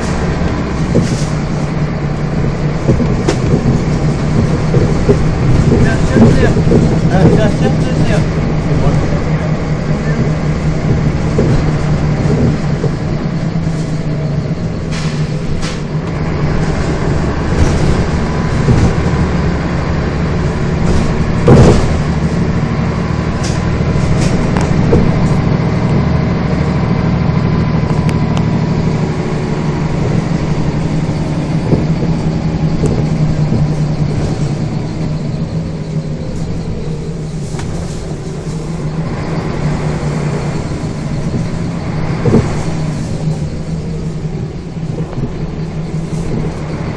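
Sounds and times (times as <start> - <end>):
bus engine running: 0.0 - 46.9.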